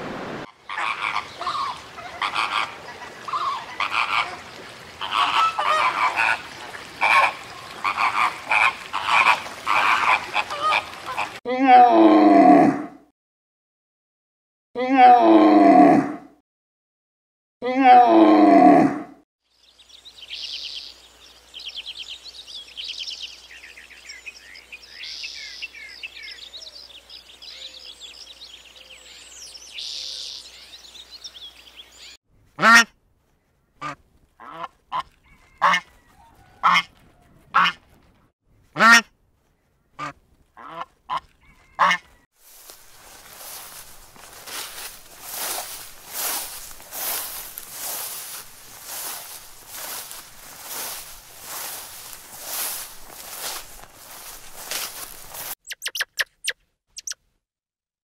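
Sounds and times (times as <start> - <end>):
loud drawn-out animal calls: 0.5 - 13.0
small birds twittering: 19.5 - 32.2, 42.6 - 57.2.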